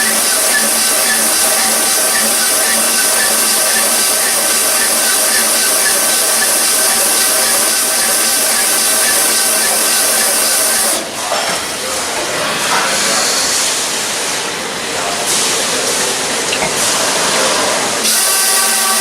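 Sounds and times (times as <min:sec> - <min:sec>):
machine hum: 0:00.0 - 0:11.2.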